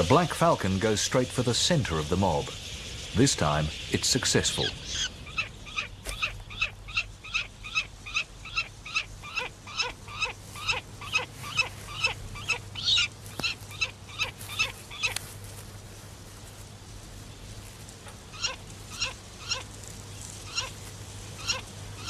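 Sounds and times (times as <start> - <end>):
bird calling sharp high calls: 1.7 - 15.3, 18.0 - 22.0.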